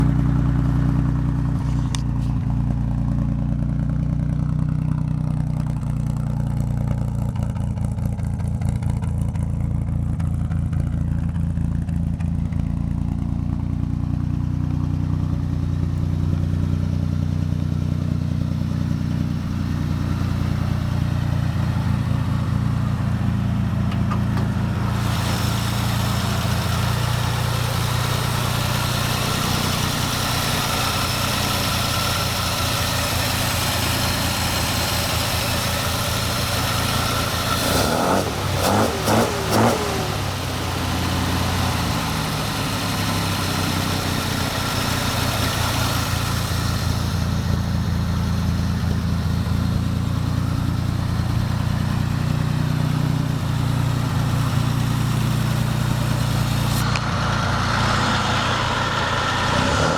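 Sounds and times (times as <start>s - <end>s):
car engine idling: 0.0s - 59.9s
rushing hiss: 24.8s - 37.6s.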